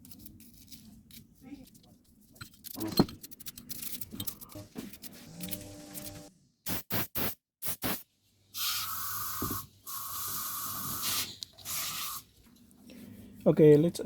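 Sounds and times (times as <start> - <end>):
aerosol can spraying: 6.7 - 8.0, 8.6 - 12.2.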